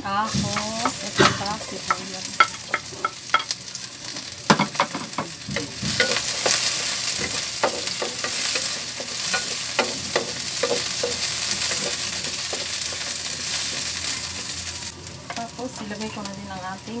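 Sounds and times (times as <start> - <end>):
food sizzling in hot oil: 0.0 - 17.0
wooden spatula knocking on pan: 4.5 - 13.0.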